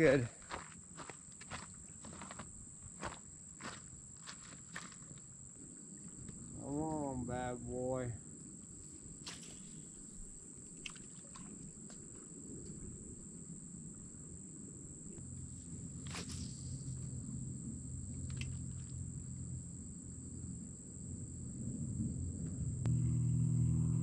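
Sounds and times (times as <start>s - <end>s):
night insects chorus: 0.0s - 24.0s
low hum: 5.5s - 24.0s.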